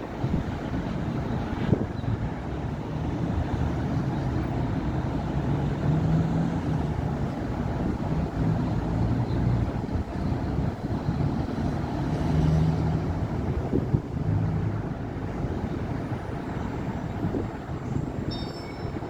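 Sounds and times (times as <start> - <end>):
passing traffic rumble: 0.0 - 19.0.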